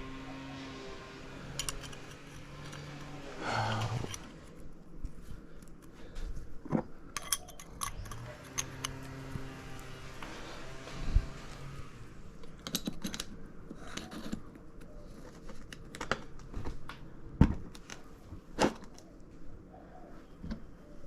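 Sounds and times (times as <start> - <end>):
metal parts clicking and clinking: 1.4 - 4.6, 7.1 - 9.2, 12.4 - 16.1.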